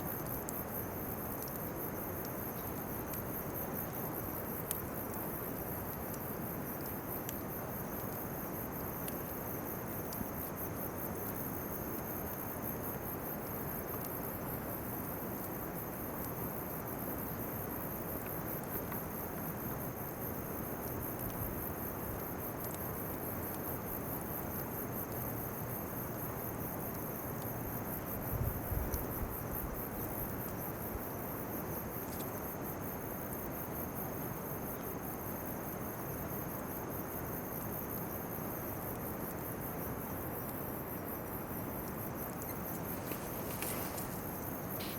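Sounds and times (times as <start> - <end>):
constant hiss: 0.0 - 44.9
insects trilling: 0.0 - 44.9
faint clicks: 41.8 - 44.9.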